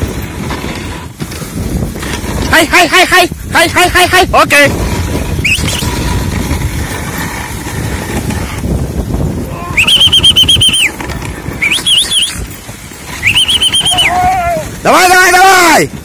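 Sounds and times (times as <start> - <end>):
sled runners rushing over snow: 0.0 - 16.0
sled dogs whining: 5.3 - 8.6, 9.4 - 14.8.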